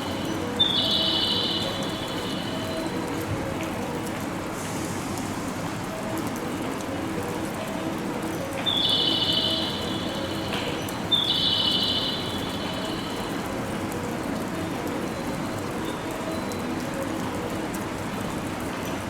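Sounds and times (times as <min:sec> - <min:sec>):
station noise: 0:00.0 - 0:03.6, 0:08.6 - 0:13.8
rain hissing: 0:00.0 - 0:16.2
high-pitched whistle blasts: 0:08.8 - 0:10.2, 0:11.1 - 0:12.7.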